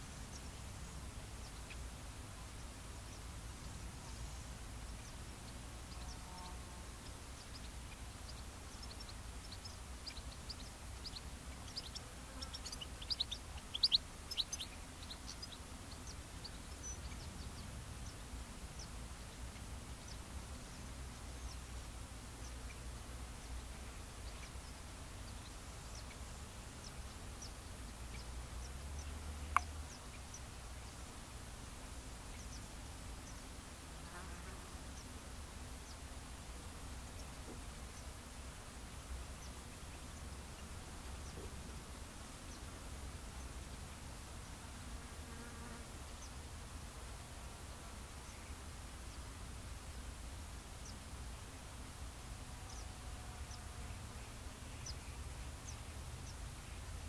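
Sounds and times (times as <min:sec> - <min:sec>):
birds chirping: 0:03.1 - 0:21.7.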